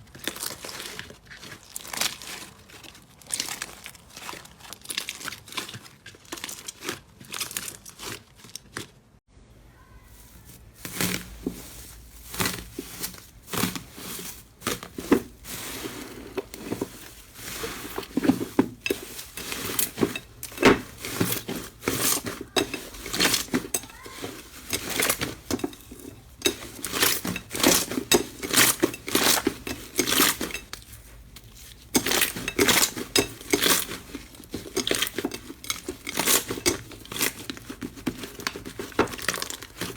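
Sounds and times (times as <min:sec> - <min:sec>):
slime crackling and popping: 0:00.0 - 0:09.0.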